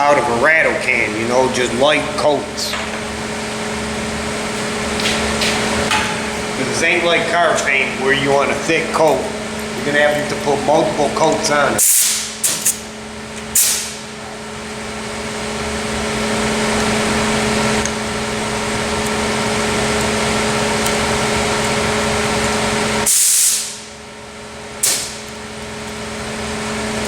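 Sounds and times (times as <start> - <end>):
fan humming: 0.0 - 27.0
sharp bursts of air: 11.8 - 12.9, 13.5 - 14.0, 23.0 - 23.9, 24.8 - 25.2
paint spray gun hissing: 23.0 - 23.8.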